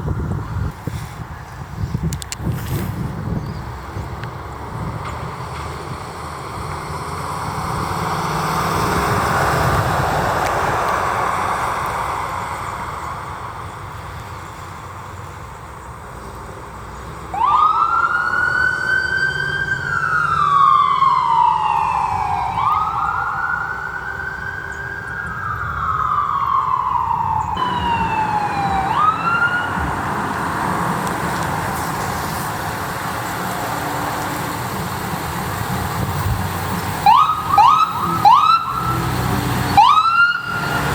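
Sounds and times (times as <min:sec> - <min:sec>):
emergency vehicle siren wailing: 0:00.0 - 0:00.9, 0:06.0 - 0:13.9, 0:17.2 - 0:40.9
vehicle passing road noise: 0:00.0 - 0:40.9.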